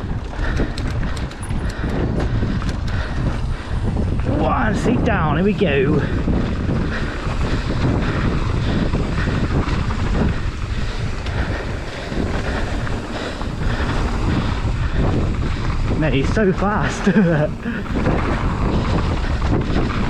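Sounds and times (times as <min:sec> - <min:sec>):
bike knocks and rattles: 0:00.0 - 0:04.2
tyres rolling on dirt trail: 0:00.0 - 0:20.0
wind buffeting microphone: 0:00.0 - 0:20.0.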